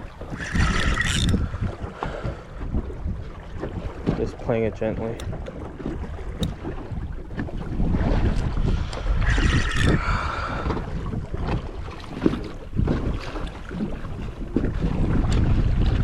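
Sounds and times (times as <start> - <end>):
water slapping boat hull: 0.0 - 16.0
wind buffeting microphone: 0.0 - 16.0.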